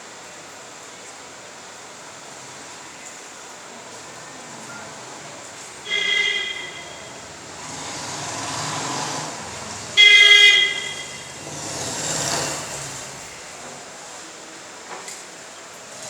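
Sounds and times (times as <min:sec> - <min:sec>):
vehicles passing by: 0:02.0 - 0:14.2
vehicle horn honk: 0:05.8 - 0:12.0.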